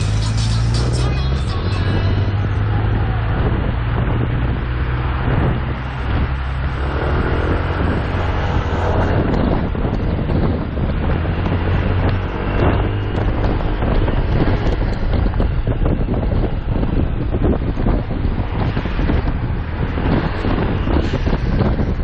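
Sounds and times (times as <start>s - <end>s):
motorcycle engine running: 0.0s - 22.0s
wind on microphone: 0.0s - 22.0s.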